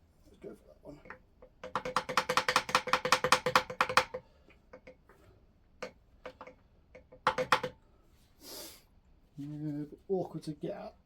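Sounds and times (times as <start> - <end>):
hammer tapping on a screwdriver: 1.1 - 5.0, 5.8 - 7.8.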